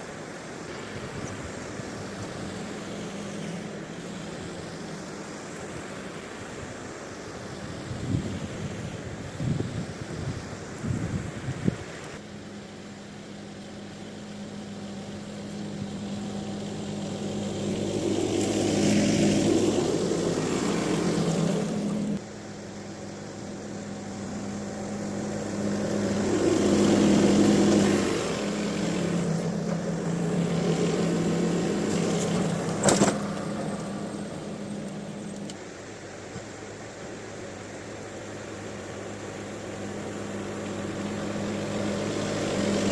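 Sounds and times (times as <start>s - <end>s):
tractor engine running: 12.0s - 42.9s.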